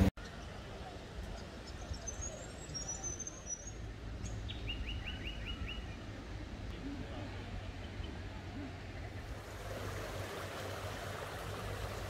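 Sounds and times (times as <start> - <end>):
small birds singing: 1.2 - 6.2.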